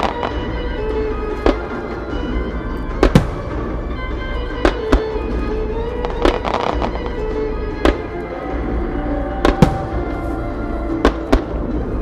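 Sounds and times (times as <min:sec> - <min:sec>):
music playing: 0:00.0 - 0:12.0
firework shells bursting: 0:02.9 - 0:07.2.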